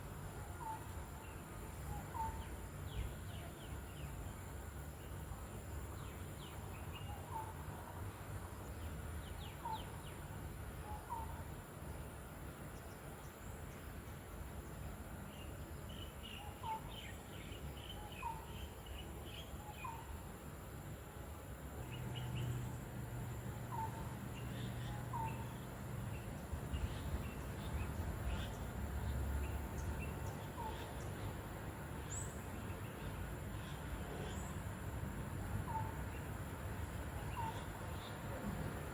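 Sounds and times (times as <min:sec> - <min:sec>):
birds chirping: 0:14.7 - 0:20.2, 0:21.7 - 0:34.6, 0:35.6 - 0:38.4.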